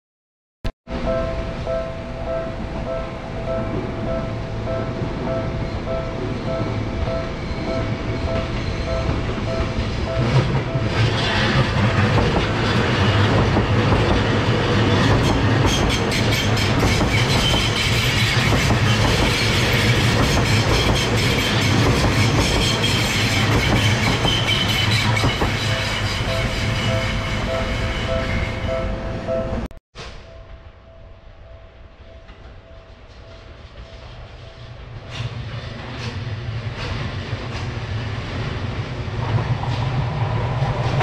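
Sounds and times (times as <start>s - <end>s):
two-tone crossing warning bell: 0.9s - 29.7s
train wheels rumbling on rail: 0.9s - 30.9s, 32.0s - 41.0s
wheels clickety-clack on rail joints: 3.7s - 28.7s, 32.3s - 41.0s.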